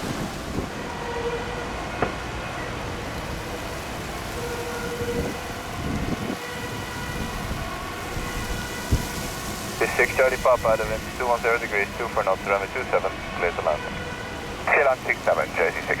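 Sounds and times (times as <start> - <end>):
wind rumbling on microphone: 0.0 - 1.0, 2.8 - 14.0
jet engines humming and whining: 0.0 - 16.0.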